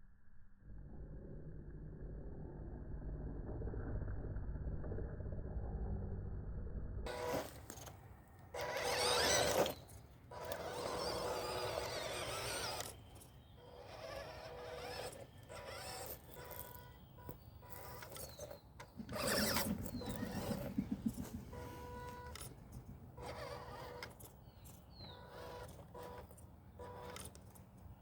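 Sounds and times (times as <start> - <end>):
small electric motor whirring: 7.1 - 28.0.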